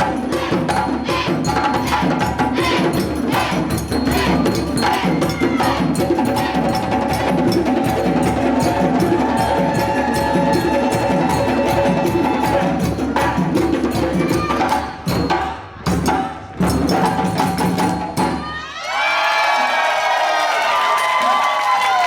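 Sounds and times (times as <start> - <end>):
percussion band drumming: 0.0 - 18.8
clacking bell or wood-block: 0.8 - 12.8.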